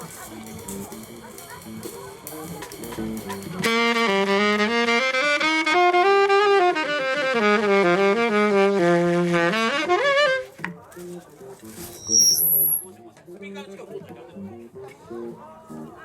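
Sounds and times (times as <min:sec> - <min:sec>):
saxophone melody: 0:02.8 - 0:10.7.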